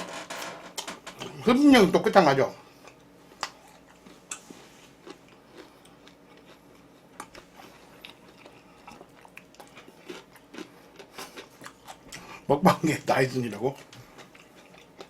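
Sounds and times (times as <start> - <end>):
person chewing: 2.7 - 12.5, 13.6 - 15.0.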